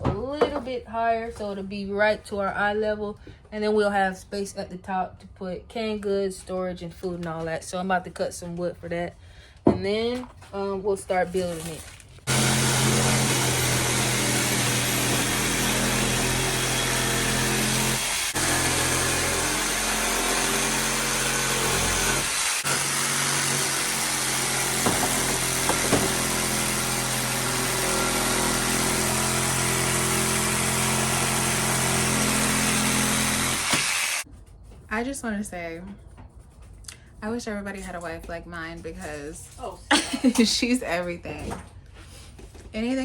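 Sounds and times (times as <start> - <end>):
motor running with hiss and hum: 32.4 - 34.2.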